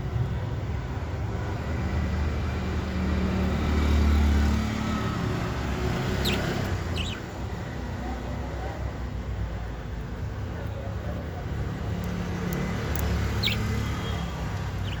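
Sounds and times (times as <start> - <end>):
passing vehicle rumble: 0.0 - 15.0
budgies chirping: 5.4 - 7.8, 12.4 - 15.0.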